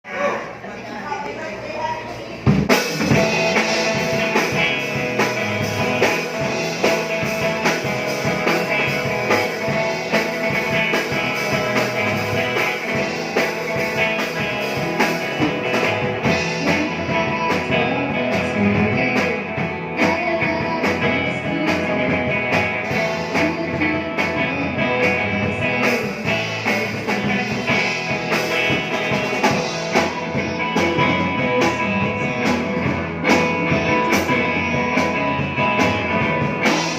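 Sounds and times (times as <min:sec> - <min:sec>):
rock band playing live: 0:02.3 - 0:36.9.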